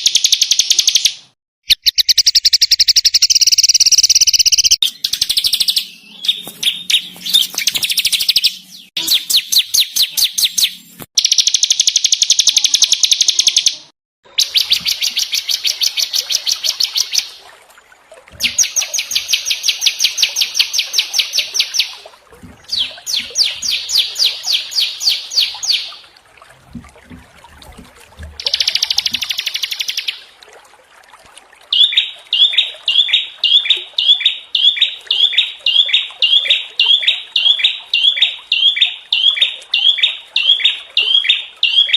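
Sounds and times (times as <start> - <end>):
songbirds trilling: 1.8 - 11.4, 22.6 - 26.0.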